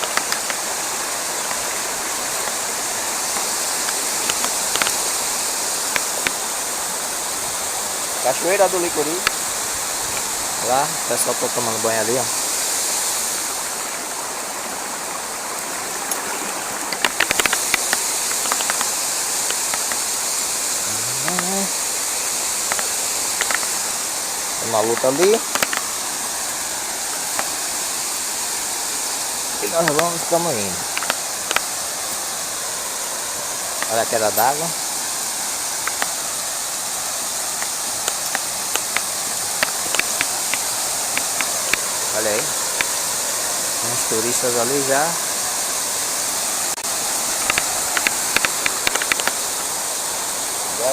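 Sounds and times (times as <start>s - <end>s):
sharp clicks: 0.0s - 0.7s, 1.5s - 6.4s, 16.9s - 20.2s, 21.2s - 21.7s, 22.5s - 24.0s, 24.7s - 26.0s, 29.7s - 31.7s, 35.8s - 36.2s, 37.6s - 41.9s, 47.3s - 49.7s
waterfall rushing water: 0.0s - 50.9s.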